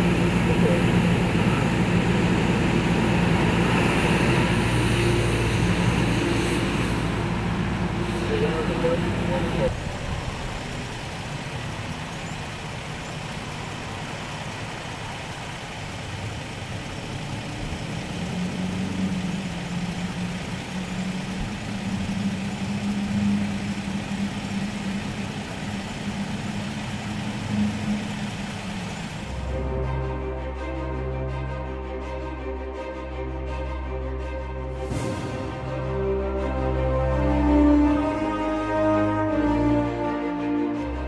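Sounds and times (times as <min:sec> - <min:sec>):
vehicle engine idling: 0:00.0 - 0:30.3
low hum: 0:00.0 - 0:39.0.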